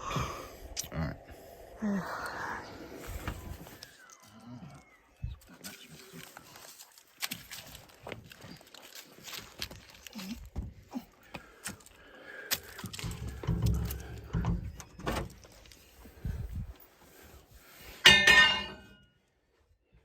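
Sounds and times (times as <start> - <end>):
metal parts knocking: 18.1 - 18.8
loud metallic clang: 18.1 - 18.9.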